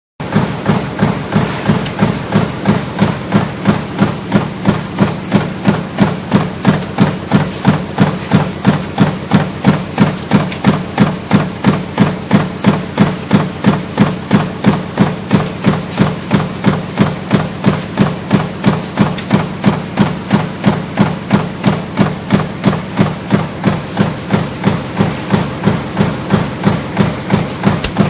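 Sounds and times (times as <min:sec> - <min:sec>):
machine hum: 0:00.2 - 0:28.0
power press clanking: 0:00.3 - 0:28.0.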